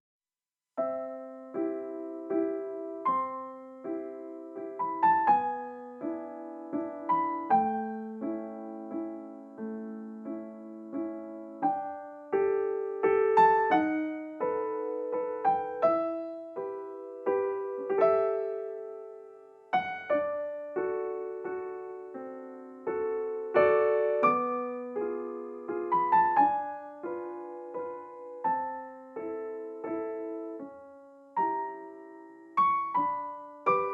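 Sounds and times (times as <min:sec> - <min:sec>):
solo piano music: 0:00.7 - 0:33.9.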